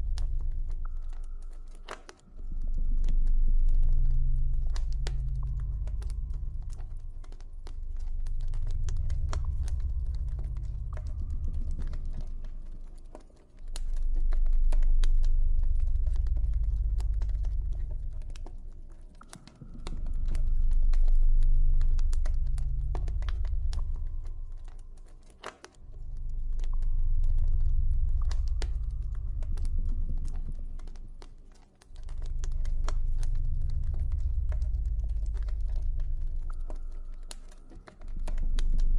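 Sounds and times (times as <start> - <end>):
deep ambient drone: 0.0 - 38.9
campfire crackling and popping: 19.2 - 38.9.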